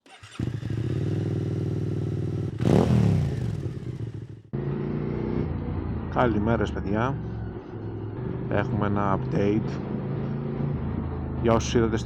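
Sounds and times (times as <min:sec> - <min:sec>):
motorcycle engine idling: 0:00.1 - 0:04.6.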